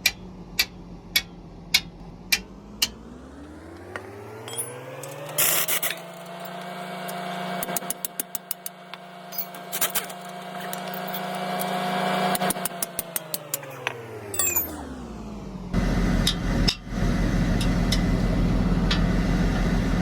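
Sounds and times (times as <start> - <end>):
sharp metallic clicks and taps: 0.0 - 3.0, 12.4 - 14.0
motor hum: 0.0 - 20.0.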